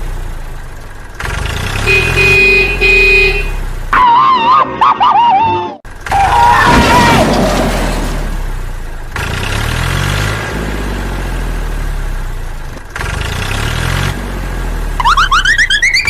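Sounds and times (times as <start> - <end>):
vehicle engine idling and revving: 0.0 - 4.3, 5.8 - 16.0
quick rising squeaks: 15.0 - 16.0.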